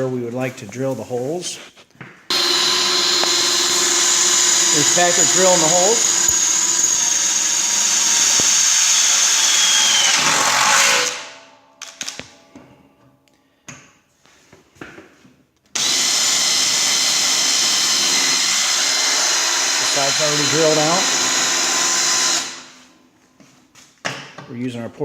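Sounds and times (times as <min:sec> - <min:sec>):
cordless drill boring: 0:02.3 - 0:11.2, 0:15.8 - 0:22.9.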